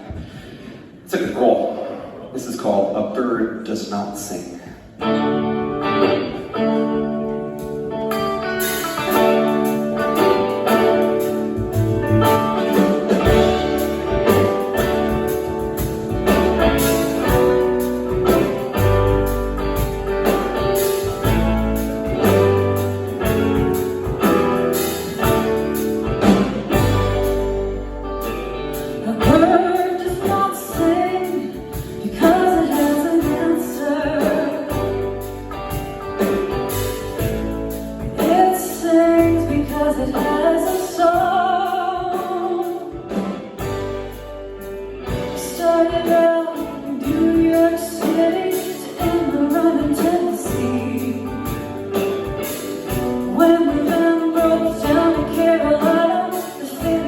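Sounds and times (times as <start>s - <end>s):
band playing with guitar: 2.4s - 57.0s
person singing: 28.7s - 36.3s, 38.0s - 43.8s, 45.1s - 57.0s.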